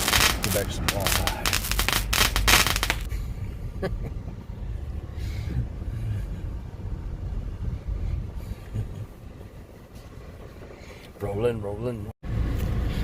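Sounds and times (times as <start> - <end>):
car driving on dirt road: 3.1 - 13.0.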